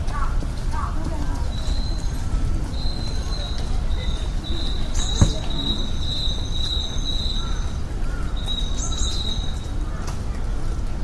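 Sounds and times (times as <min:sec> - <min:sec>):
single knock: 0:05.2 - 0:05.6.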